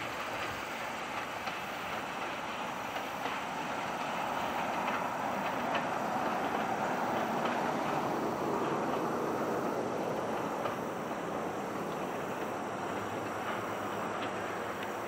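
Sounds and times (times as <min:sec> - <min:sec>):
train cars rumbling: 0:00.0 - 0:15.0
wheels clicking over rail joints: 0:00.0 - 0:15.0.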